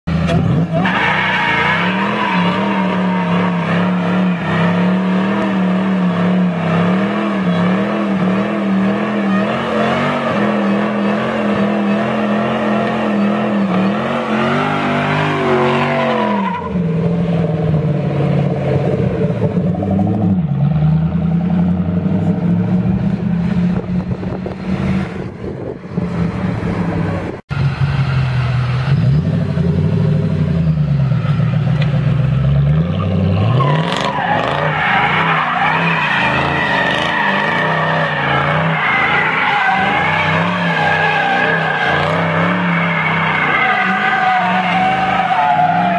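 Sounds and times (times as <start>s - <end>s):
car engine revving: 0.1s - 45.9s
tyres squealing: 0.6s - 5.4s, 33.5s - 45.9s.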